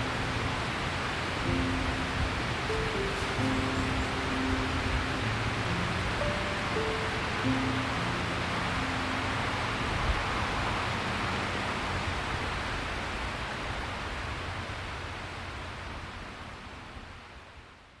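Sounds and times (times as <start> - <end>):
background music: 0.0 - 10.6
river water rushing: 0.0 - 16.7.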